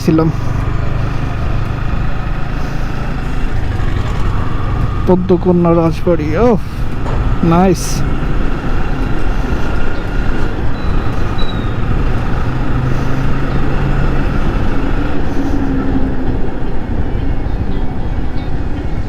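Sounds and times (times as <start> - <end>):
motorcycle engine running: 0.0 - 15.8
wind rushing over microphone: 6.3 - 19.0.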